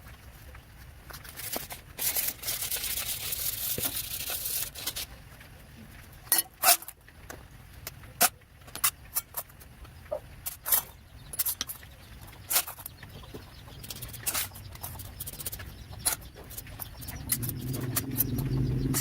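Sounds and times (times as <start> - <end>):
high even scraping: 12.6 - 19.0.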